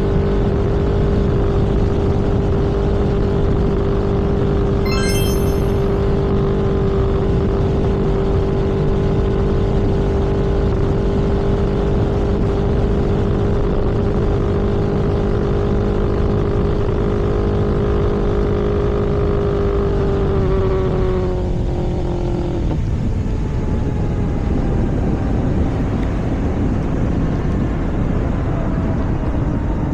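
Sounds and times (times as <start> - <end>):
wind and road noise: 7.2 - 29.9.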